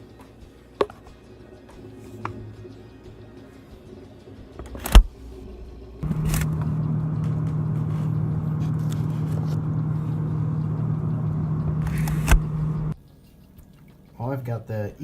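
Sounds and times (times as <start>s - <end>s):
machine hum with rushing noise: 4.8s - 13.0s.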